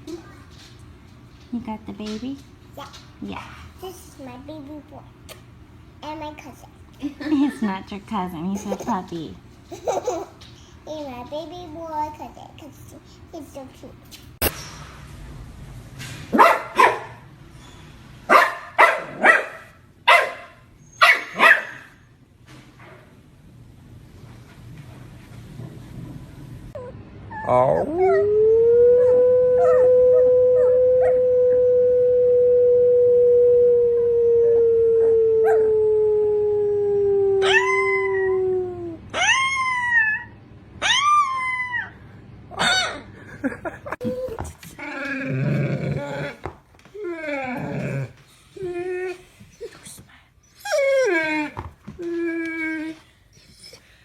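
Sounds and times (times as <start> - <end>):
dog barking: 16.4 - 17.2, 18.3 - 21.9
dog howling low: 26.8 - 42.0, 50.6 - 53.0
higher dog howls: 27.4 - 40.3.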